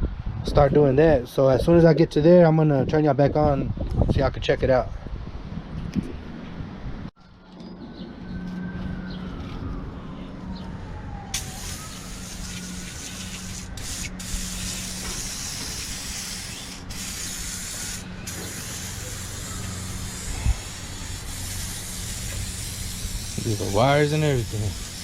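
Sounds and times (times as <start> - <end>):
liquid spray hissing: 11.3 - 25.0.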